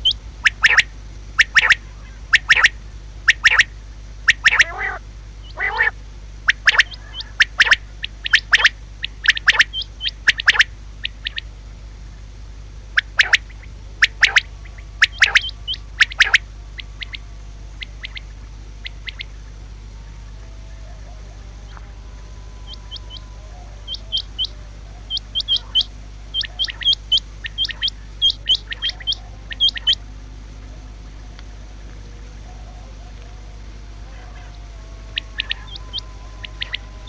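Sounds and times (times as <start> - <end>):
quail calling: 0.0 - 11.5, 12.9 - 19.6, 20.4 - 30.8, 34.0 - 37.0.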